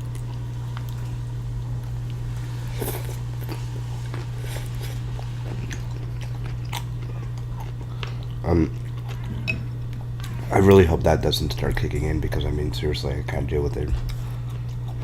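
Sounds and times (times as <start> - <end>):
chewing with wet clicks: 0.0 - 1.1, 5.2 - 10.4, 14.0 - 15.0
steady low hum: 0.0 - 15.0.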